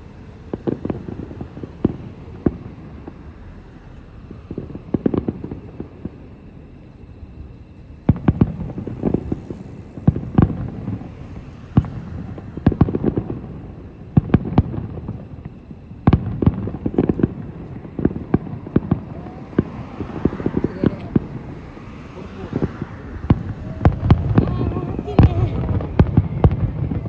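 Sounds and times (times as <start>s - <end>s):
distant fireworks bangs: 0.0s - 27.0s
low rumbling: 16.2s - 27.0s.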